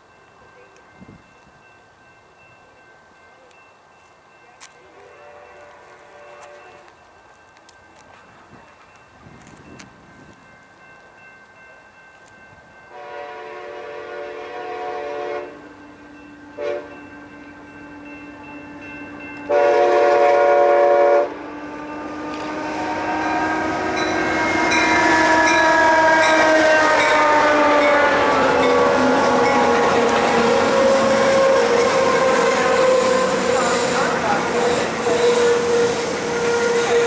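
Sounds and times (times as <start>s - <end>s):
train rumbling: 0.0s - 37.0s
locomotive air horn blasts: 5.0s - 6.9s, 12.9s - 15.7s, 16.5s - 17.0s, 19.5s - 37.0s.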